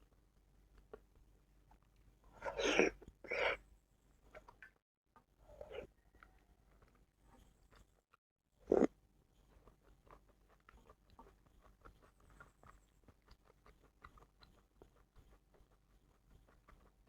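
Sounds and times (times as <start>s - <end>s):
person chewing: 9.6s - 17.0s.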